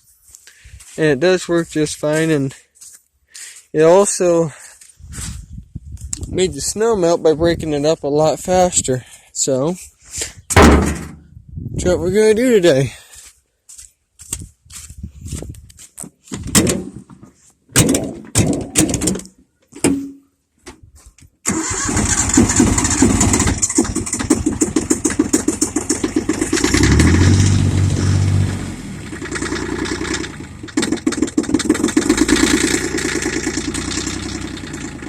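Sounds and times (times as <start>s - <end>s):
knocks and clunks: 10.5s - 11.3s, 16.3s - 20.8s, 23.4s - 28.3s, 29.1s - 35.0s
tractor diesel engine running: 21.5s - 35.0s.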